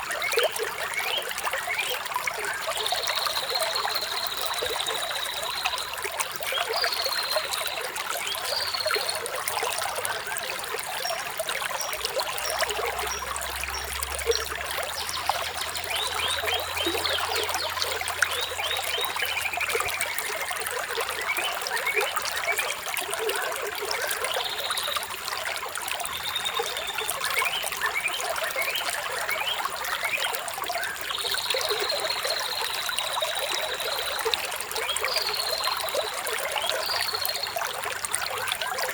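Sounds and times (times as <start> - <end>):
water trickling over stones: 0.0 - 38.9.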